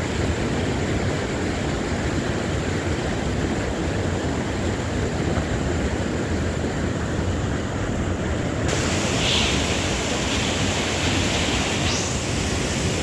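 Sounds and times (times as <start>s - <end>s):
waterfall rushing: 8.7s - 13.0s.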